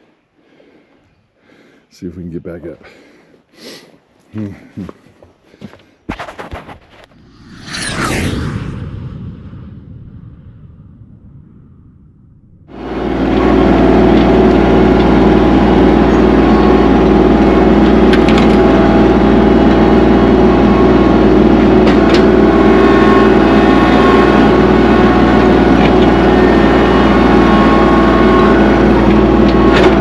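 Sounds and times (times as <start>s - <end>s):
tractor diesel engine running: 13.1s - 22.5s.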